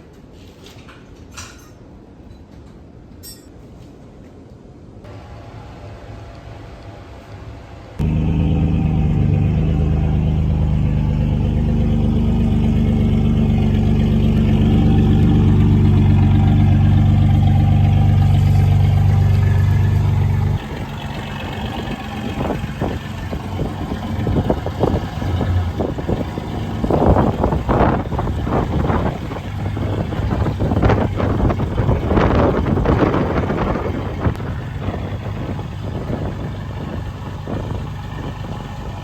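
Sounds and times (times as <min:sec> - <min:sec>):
engine running: 0:07.9 - 0:39.0
wind buffeting microphone: 0:11.5 - 0:39.0.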